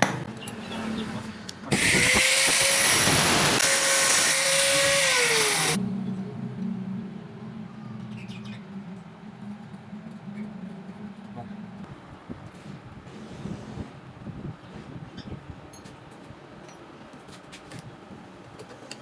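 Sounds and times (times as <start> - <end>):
motorized whine winding down: 1.7 - 5.8
low hum: 4.6 - 12.3.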